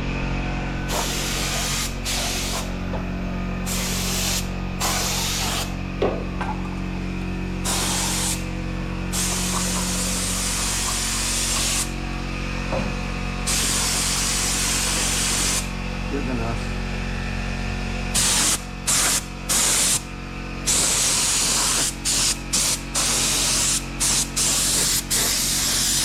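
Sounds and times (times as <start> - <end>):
welder humming: 0.0 - 26.0
welder arc hissing and crackling: 0.8 - 5.8, 7.6 - 12.0, 13.4 - 15.7, 18.2 - 26.0.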